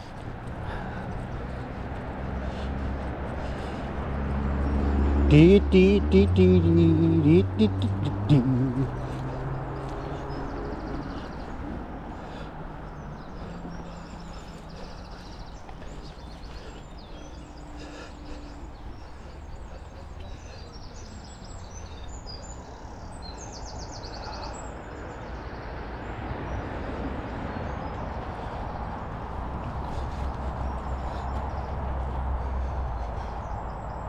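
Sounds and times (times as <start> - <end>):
small songbirds chirping: 0.0 - 34.0.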